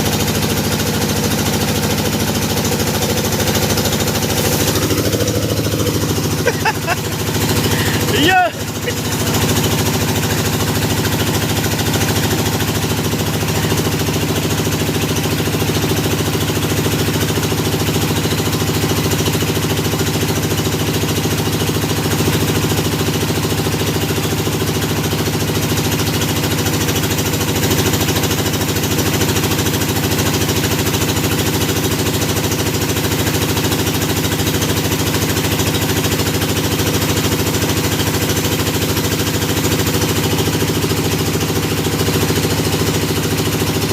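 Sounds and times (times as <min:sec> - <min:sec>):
drilling rig engine pulsing: 0:00.0 - 0:16.2.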